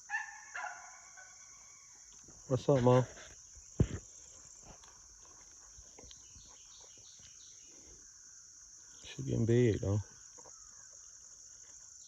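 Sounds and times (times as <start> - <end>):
faint bird chirps: 5.7 - 12.0.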